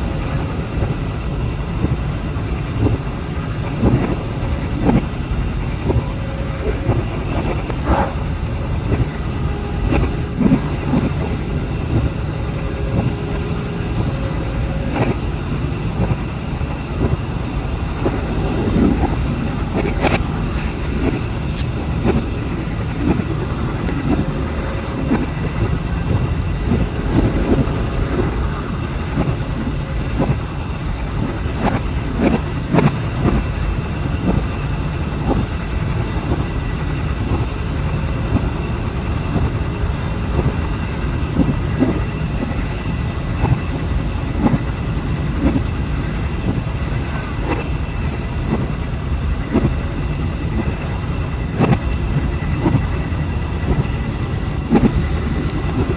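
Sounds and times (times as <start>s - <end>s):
faint high whine: 0.0s - 55.9s
train rumbling on rails: 0.0s - 55.9s.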